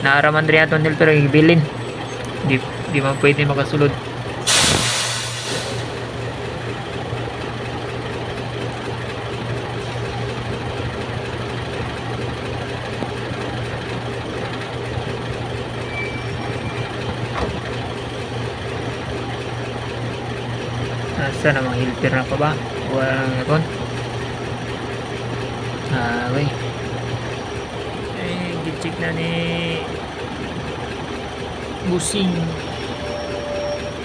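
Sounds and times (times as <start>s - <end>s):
diesel engine idling: 0.0s - 34.0s
short loud hiss: 4.4s - 5.9s.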